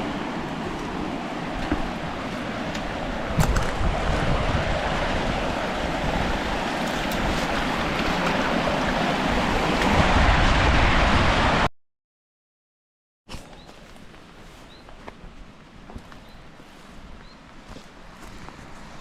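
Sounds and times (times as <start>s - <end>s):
wind gusting across microphone: 0.0s - 11.7s.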